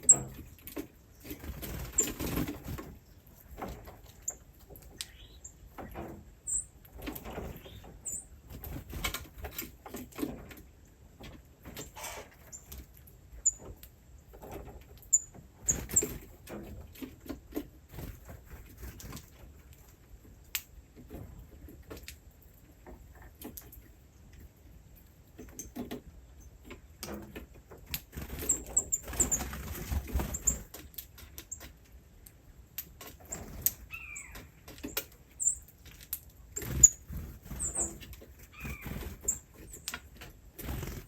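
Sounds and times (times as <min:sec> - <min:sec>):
rustling and scratching: 0:05.7 - 0:20.3, 0:25.4 - 0:32.1, 0:32.9 - 0:41.0
small animals chirping: 0:33.3 - 0:34.5, 0:36.6 - 0:39.9.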